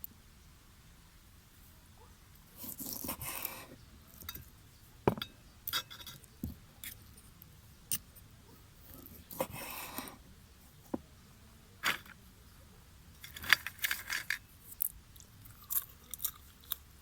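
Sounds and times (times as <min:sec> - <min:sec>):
clicks of small hard objects: 0:11.8 - 0:12.2, 0:13.2 - 0:16.9.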